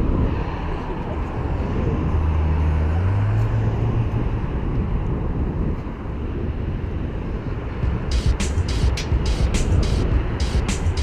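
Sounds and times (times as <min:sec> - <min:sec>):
wind on microphone: 0:00.0 - 0:08.1
road rumble: 0:00.0 - 0:11.0.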